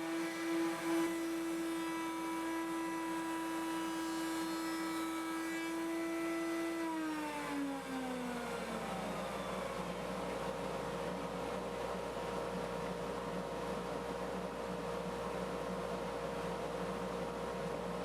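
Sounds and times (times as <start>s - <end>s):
router whining and spinning down: 0.0s - 10.8s.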